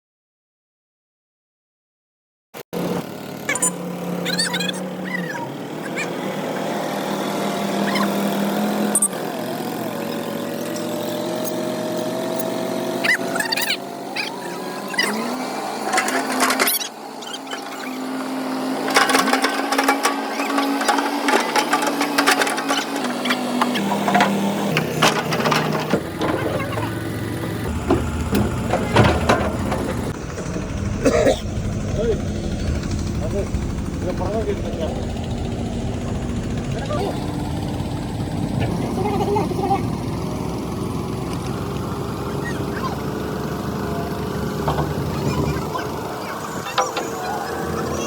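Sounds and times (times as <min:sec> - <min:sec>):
excavator diesel engine running: 0:02.8 - 0:48.0
metal knocks and clanks: 0:17.5 - 0:31.9, 0:44.3 - 0:47.9.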